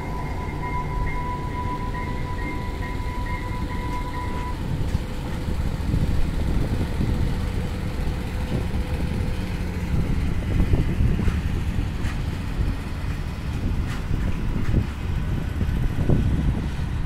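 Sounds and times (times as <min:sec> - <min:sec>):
train horn: 0:00.0 - 0:04.6
railcar rumbling on bridge: 0:00.0 - 0:17.0.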